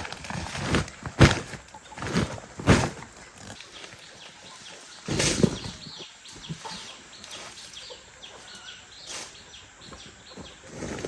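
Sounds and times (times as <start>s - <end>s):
chicken wings flapping: 0.0s - 3.2s
chickens calling: 0.0s - 11.0s.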